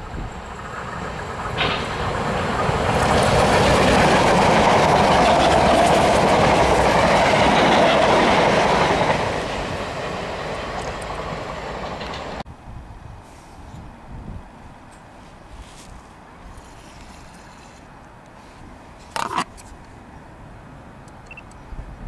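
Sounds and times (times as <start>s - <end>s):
train passing at speed: 0.0s - 13.2s
wheels clattering over rail joints: 0.4s - 12.4s.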